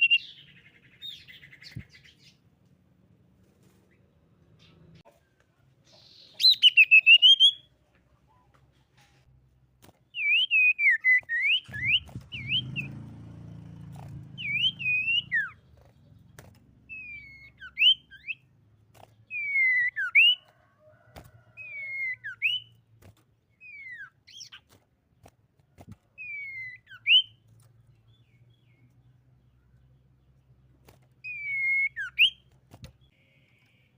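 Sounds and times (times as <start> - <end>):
bird singing whistled notes: 0.0 - 2.4, 6.0 - 7.7, 10.1 - 13.0, 14.4 - 15.6, 16.9 - 18.5, 19.3 - 20.4, 21.6 - 22.8, 23.6 - 24.6, 26.2 - 27.4, 31.2 - 33.9.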